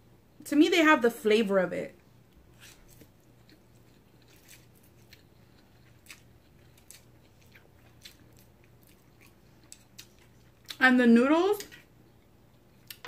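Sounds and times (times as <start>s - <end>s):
faint chewing of noodles: 2.3s - 10.8s.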